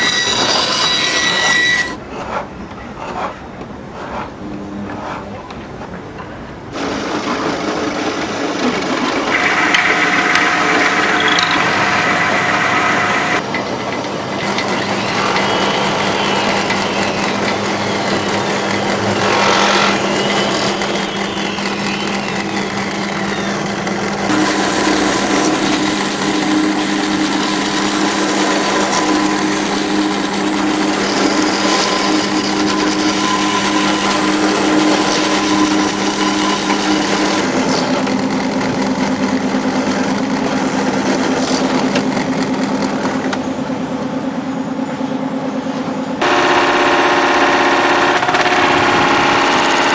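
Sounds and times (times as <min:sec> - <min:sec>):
steady hums: 0:06.6 - 0:49.9
power tools on wood: 0:06.8 - 0:13.4, 0:16.5 - 0:23.3, 0:24.2 - 0:38.8.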